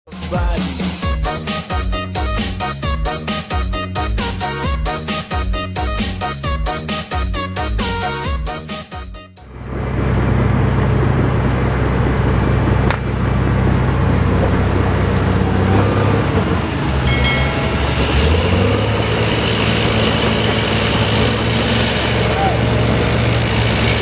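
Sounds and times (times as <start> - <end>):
diesel truck engine running: 0.3 - 24.0.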